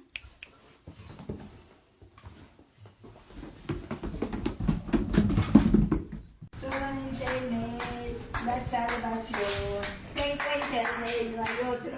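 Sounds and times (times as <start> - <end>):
dog paws pattering down stairs: 0.6 - 6.5.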